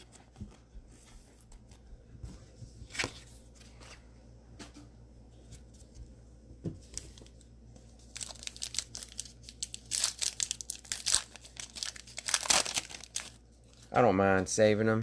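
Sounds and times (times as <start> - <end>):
cellophane wrapper crinkling and tearing: 8.0 - 14.0.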